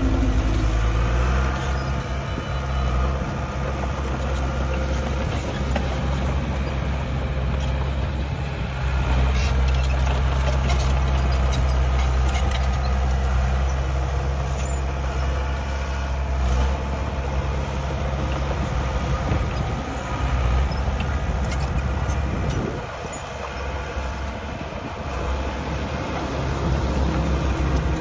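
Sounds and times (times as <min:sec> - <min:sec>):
bulldozer diesel engine drone: 0:00.0 - 0:28.0
metallic track clanks and squeaks: 0:09.3 - 0:13.9, 0:14.5 - 0:14.9, 0:20.5 - 0:23.7.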